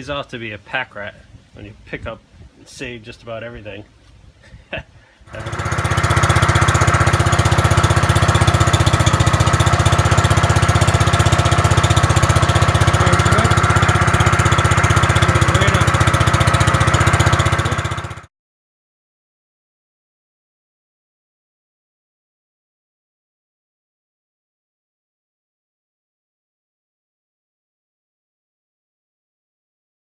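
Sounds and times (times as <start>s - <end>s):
tractor engine running: 5.3s - 18.3s.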